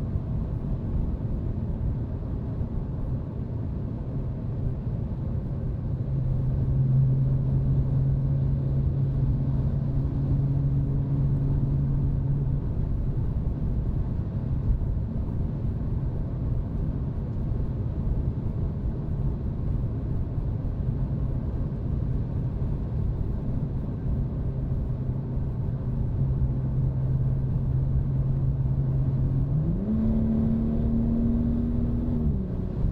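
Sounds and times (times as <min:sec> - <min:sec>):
car exhaust drone: 0:00.0 - 0:32.9
road rumble: 0:00.0 - 0:32.9
engine accelerating: 0:26.5 - 0:32.9.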